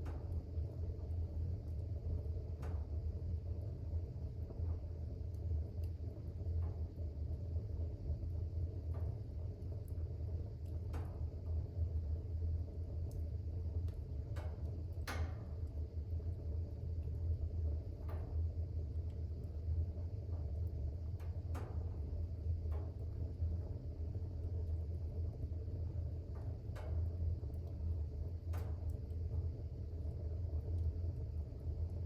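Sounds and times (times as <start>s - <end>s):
fire crackles and pops: 0.0s - 32.0s
fire rumbling: 0.0s - 32.0s.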